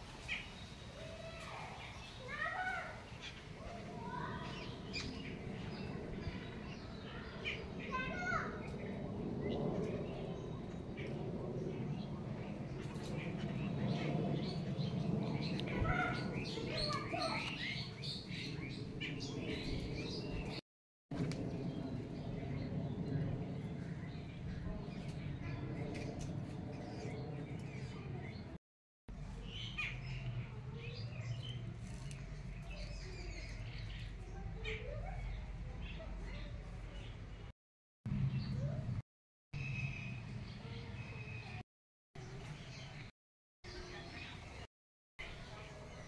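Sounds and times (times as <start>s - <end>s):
small birds chirping: 0.1s - 20.6s, 29.2s - 37.5s.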